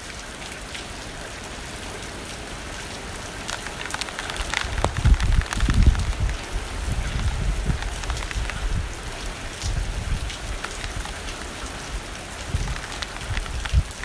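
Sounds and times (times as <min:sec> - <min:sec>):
rain drops on window glass: 0:00.0 - 0:14.0
wind rumbling: 0:03.2 - 0:14.0.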